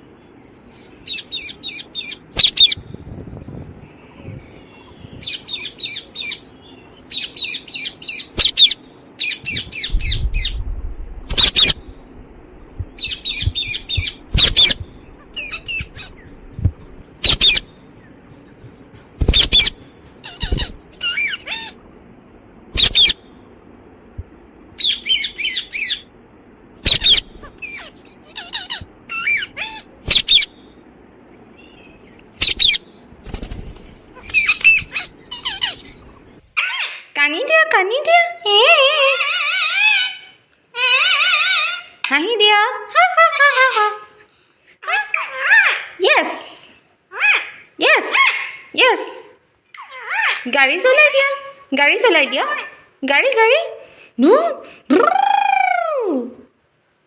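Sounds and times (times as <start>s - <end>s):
parakeet chattering: 1.1s - 2.8s, 7.1s - 10.6s, 11.2s - 17.8s, 19.2s - 22.0s, 22.8s - 23.2s, 26.8s - 30.6s, 32.4s - 32.8s, 34.2s - 37.0s
parakeet screeches: 1.1s - 2.8s, 7.2s - 10.6s, 11.3s - 11.9s, 13.0s - 16.2s, 17.2s - 17.7s, 19.3s - 21.8s, 22.8s - 23.2s, 26.8s - 30.5s, 31.7s - 32.8s, 34.2s - 35.9s, 39.1s - 42.0s.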